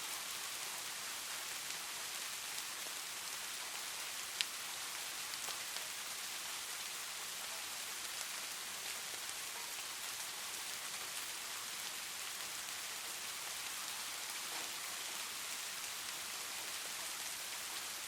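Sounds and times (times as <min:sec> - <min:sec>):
steady rain falling: 0:00.0 - 0:18.0
raindrop ticks: 0:03.6 - 0:18.0.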